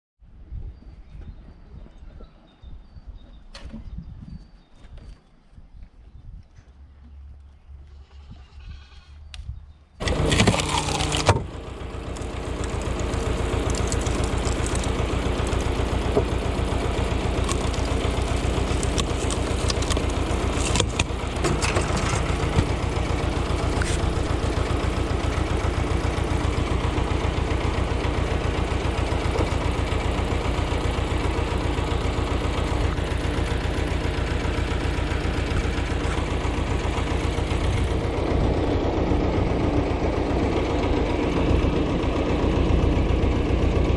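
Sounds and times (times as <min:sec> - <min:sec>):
tractor engine starting and running: 0:10.0 - 0:43.9.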